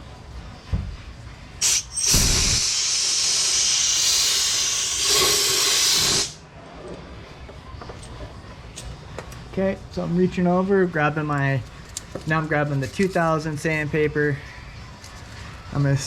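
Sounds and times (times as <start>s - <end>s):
compressed air blow gun hissing: 1.6s - 6.4s.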